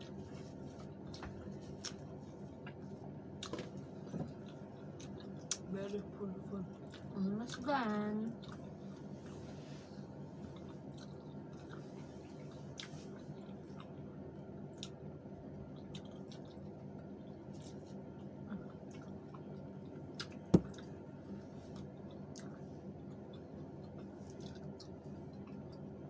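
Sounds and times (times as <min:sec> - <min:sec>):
wet chewing and mouth smacks: 0:08.3 - 0:09.1, 0:10.4 - 0:15.0, 0:15.6 - 0:21.0, 0:21.6 - 0:25.9.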